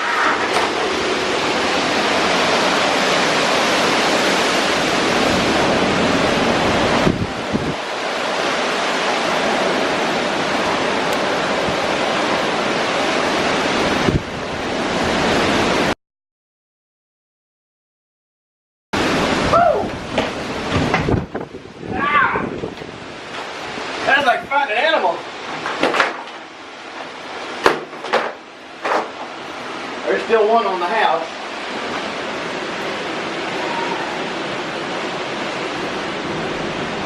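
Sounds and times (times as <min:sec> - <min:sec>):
strong wind on microphone: 0:00.0 - 0:15.9, 0:19.0 - 0:24.7.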